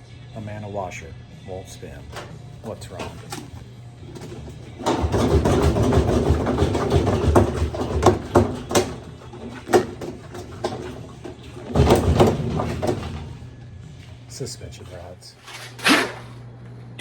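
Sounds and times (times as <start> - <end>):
sharp clunks: 2.1 - 13.5
washer tub knocking and rattling: 2.1 - 16.4.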